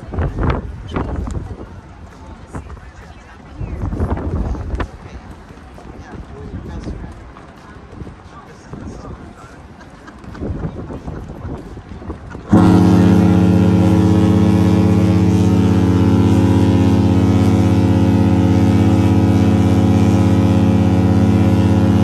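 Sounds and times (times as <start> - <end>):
ship horn blast: 12.4 - 22.0.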